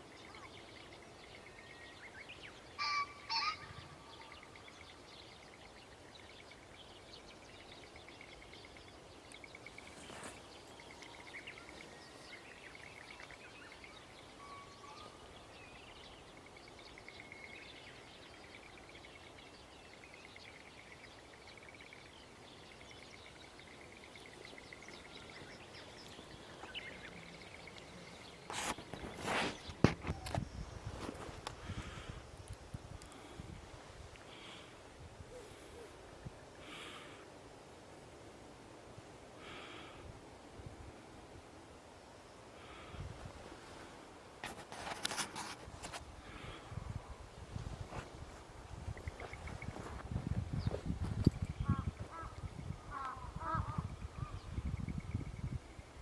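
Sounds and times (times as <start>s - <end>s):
wild birds calling: 0.0s - 30.4s, 49.0s - 54.9s
loud sharp pheasant call: 2.8s - 4.4s.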